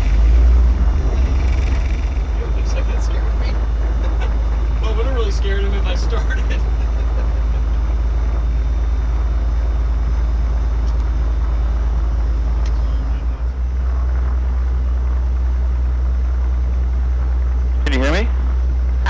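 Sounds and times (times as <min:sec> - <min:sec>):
aircraft engine idling: 0:01.2 - 0:13.7, 0:17.9 - 0:18.2.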